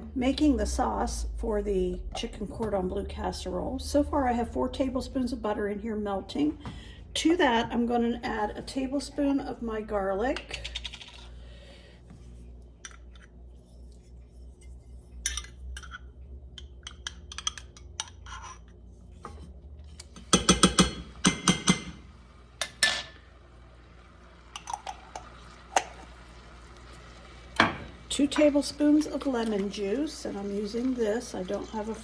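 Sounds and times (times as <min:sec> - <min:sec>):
metal spoon tapping jar and skillet: 0:20.2 - 0:22.0.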